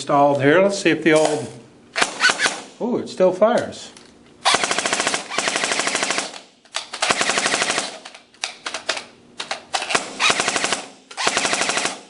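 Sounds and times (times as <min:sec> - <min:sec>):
airsoft gun firing bursts: 0:02.0 - 0:02.7, 0:04.4 - 0:08.1, 0:09.8 - 0:12.0.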